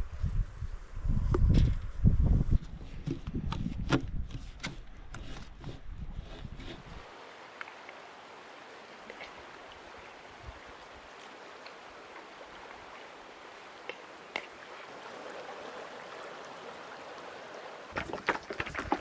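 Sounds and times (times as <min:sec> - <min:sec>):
stream water rushing: 0:06.9 - 0:19.0.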